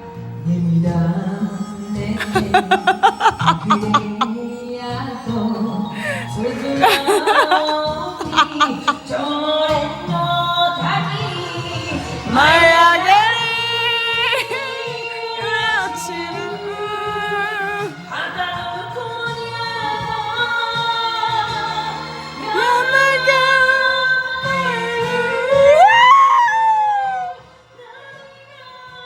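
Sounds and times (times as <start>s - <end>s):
backing music: 0.0s - 29.0s
woman singing slow song: 0.4s - 29.0s.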